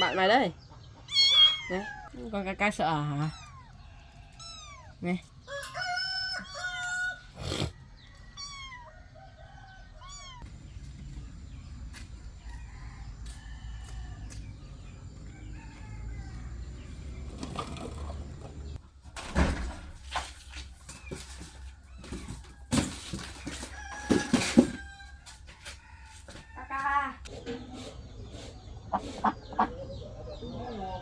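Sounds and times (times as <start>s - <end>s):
kittens meowing: 0.0s - 0.4s, 1.0s - 2.3s, 3.1s - 5.0s, 8.3s - 8.9s, 9.9s - 10.4s.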